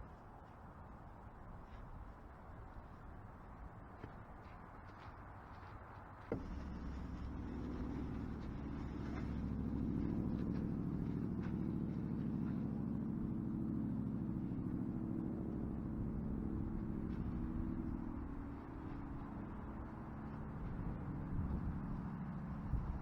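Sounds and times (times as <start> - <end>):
engine running: 6.2 - 23.0.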